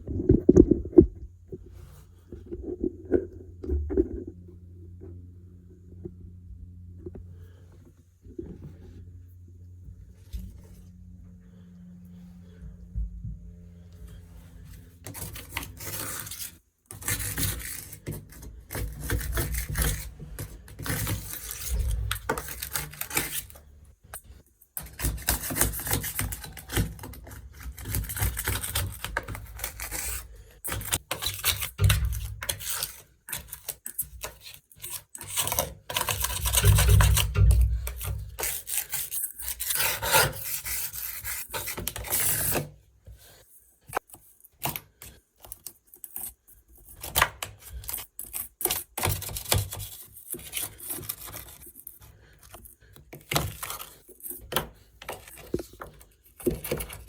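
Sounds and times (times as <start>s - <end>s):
hand tool scraping sealant: 15.0s - 42.7s.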